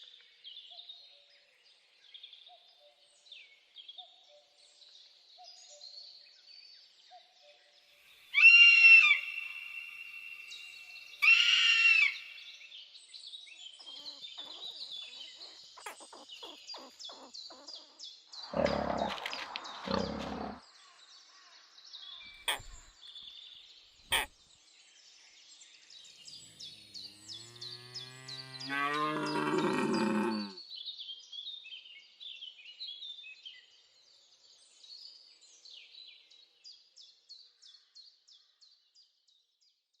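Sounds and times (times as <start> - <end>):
small birds chirping: 8.4 - 31.6
large animal low call: 18.5 - 20.6, 26.4 - 30.6.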